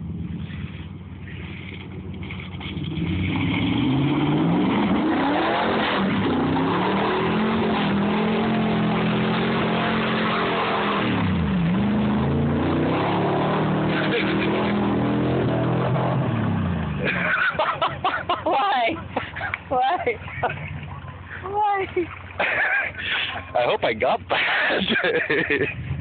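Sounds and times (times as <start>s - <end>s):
engine revving hard: 2.8s - 17.4s.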